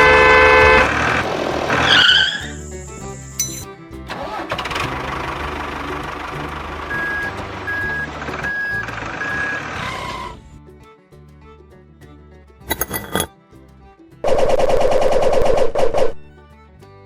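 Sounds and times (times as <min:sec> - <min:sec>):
background music: 0:00.7 - 0:15.3
truck engine running: 0:04.1 - 0:10.4.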